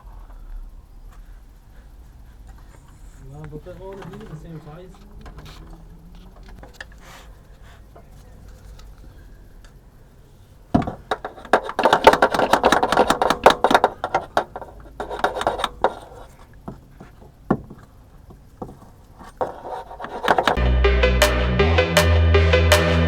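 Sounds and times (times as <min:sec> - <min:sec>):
metal tools clattering: 0:10.8 - 0:20.6.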